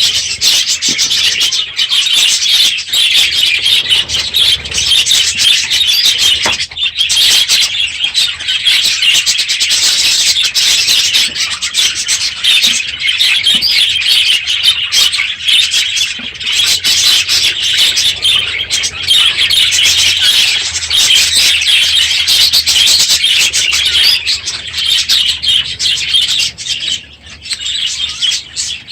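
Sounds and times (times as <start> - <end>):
budgerigars chattering: 0.0 - 28.9.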